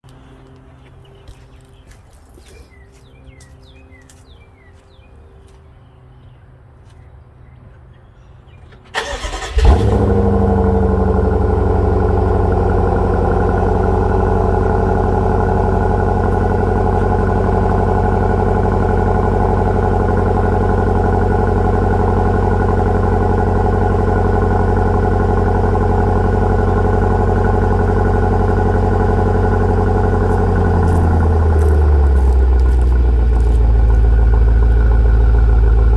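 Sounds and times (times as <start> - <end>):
car engine fast idle: 8.8 - 35.9.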